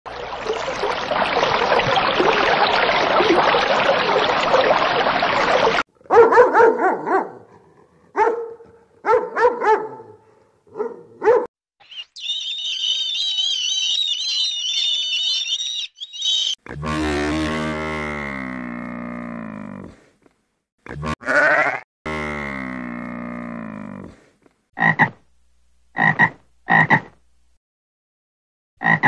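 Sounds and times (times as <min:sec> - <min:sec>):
dog barking: 0:06.0 - 0:11.5
seabirds calling: 0:11.8 - 0:16.6.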